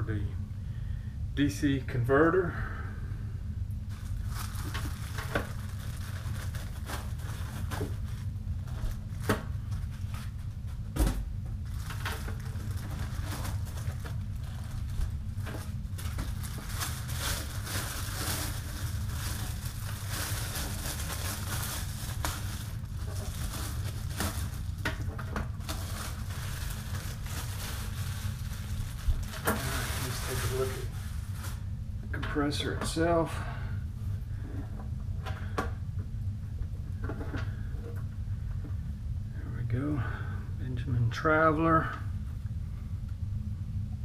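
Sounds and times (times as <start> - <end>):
steady low hum: 0.0 - 44.0
plastic packaging crinkling: 3.9 - 10.4, 11.6 - 31.6.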